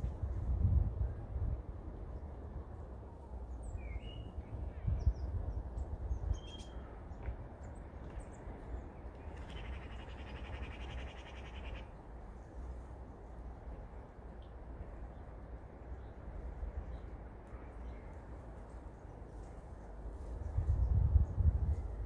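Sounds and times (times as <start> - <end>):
wind rumble on microphone: 0.0 - 11.2, 16.0 - 22.0.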